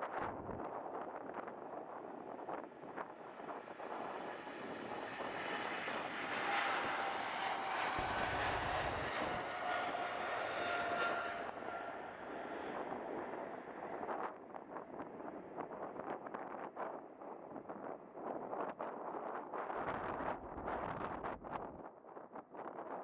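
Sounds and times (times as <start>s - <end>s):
wind buffeting microphone: 0.0s - 22.8s
jet engines roaring: 2.1s - 14.2s.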